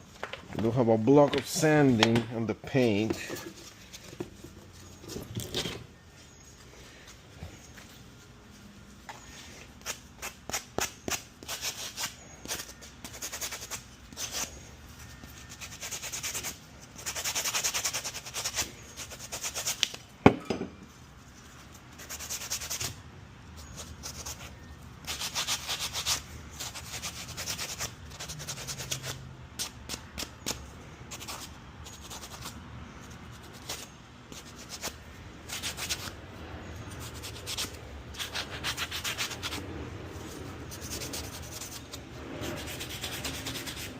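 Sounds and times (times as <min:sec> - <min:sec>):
sanding block scraping: 0:15.5 - 0:19.8, 0:25.0 - 0:30.3, 0:36.9 - 0:43.9.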